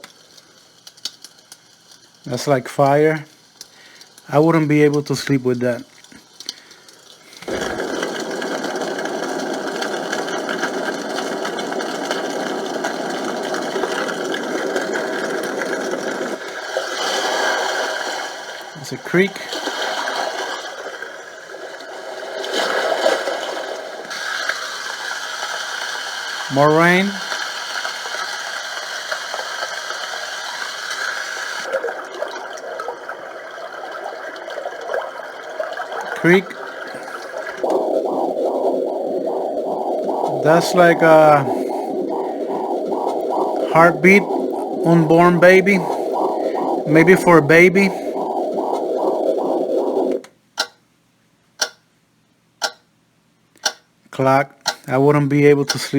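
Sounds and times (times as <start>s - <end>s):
recorded rain sound from speaker: 0.0s - 16.5s, 18.8s - 19.5s, 22.6s - 38.1s, 40.0s - 43.0s, 43.6s - 48.0s
white noise machine rushing: 7.4s - 16.6s, 36.2s - 50.3s
recorded running water creek: 26.5s - 27.2s.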